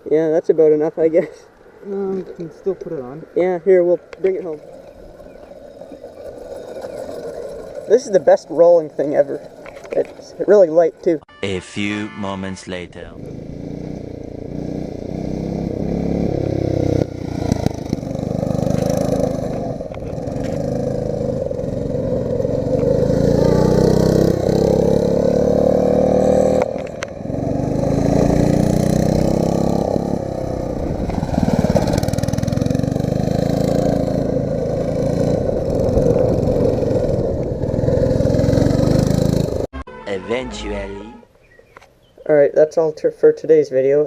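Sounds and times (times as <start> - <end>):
go-kart engine accelerating: 4.6 - 10.6, 13.2 - 39.7.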